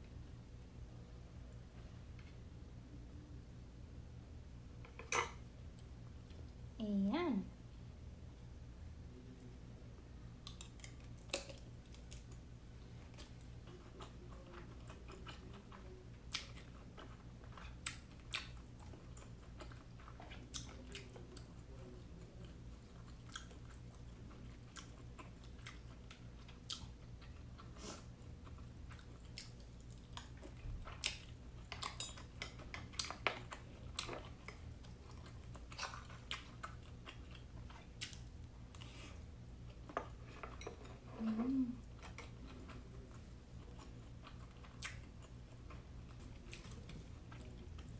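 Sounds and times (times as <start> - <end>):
low steady hum: 0.0 - 47.9
chewing and mouth smacks: 10.4 - 39.0, 39.7 - 47.9.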